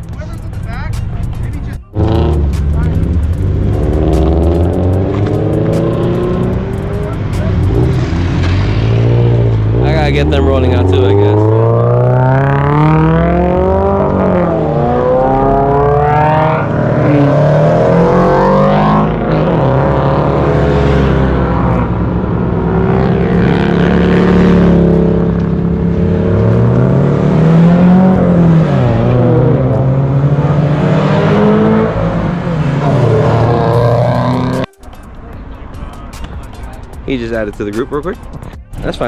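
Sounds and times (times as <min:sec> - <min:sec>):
car engines manoeuvring: 0:00.0 - 0:39.0.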